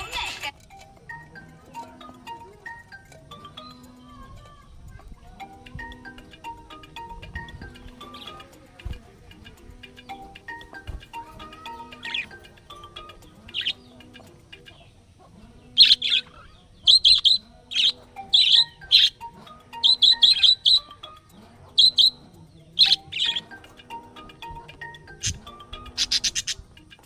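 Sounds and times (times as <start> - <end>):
parrot chirping: 11.6 - 13.9, 15.8 - 21.2, 21.8 - 22.2, 22.8 - 23.8, 24.9 - 27.0.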